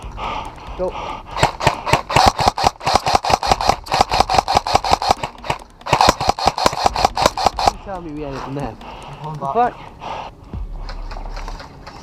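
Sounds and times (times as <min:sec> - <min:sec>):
airsoft rifle rapid fire: 0:01.4 - 0:07.9.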